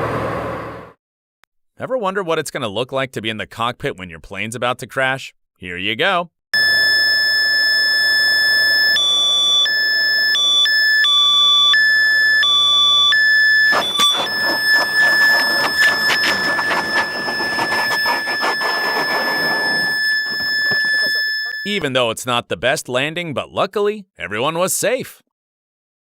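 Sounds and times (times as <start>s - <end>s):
cockpit warning alarm: 6.6s - 21.8s.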